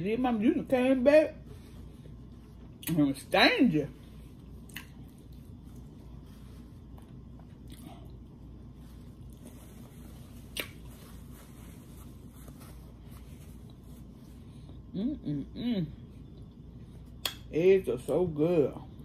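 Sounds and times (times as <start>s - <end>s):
low room hum: 0.0s - 19.0s
person chewing: 4.6s - 6.0s, 6.8s - 8.3s, 10.4s - 10.9s.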